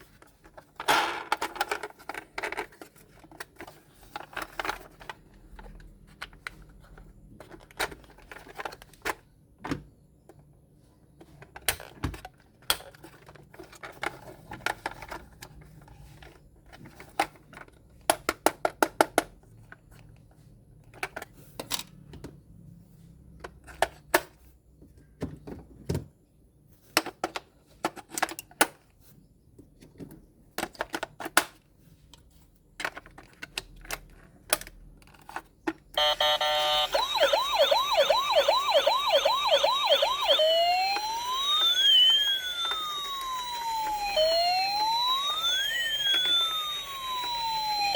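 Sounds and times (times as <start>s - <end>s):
plastic toys clicking and clattering: 0.0s - 9.4s, 11.2s - 22.3s, 23.4s - 24.5s, 26.7s - 37.1s.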